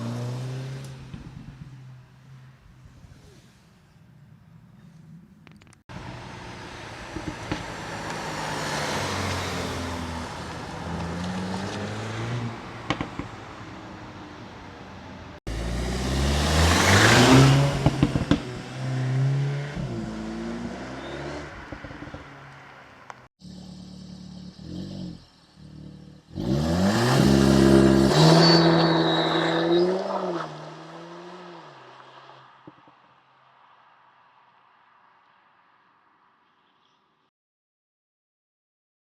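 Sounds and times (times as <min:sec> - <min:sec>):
exhaust pops and crackles: 0:07.0 - 0:08.2, 0:12.8 - 0:13.6, 0:17.2 - 0:18.9, 0:21.5 - 0:23.3
car engine accelerating hard: 0:15.5 - 0:22.8.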